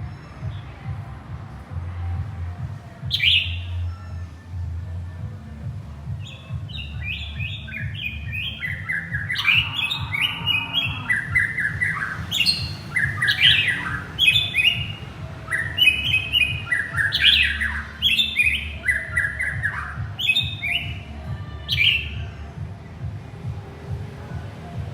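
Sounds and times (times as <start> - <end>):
bird singing whistled notes: 3.0 - 4.2, 6.1 - 22.4.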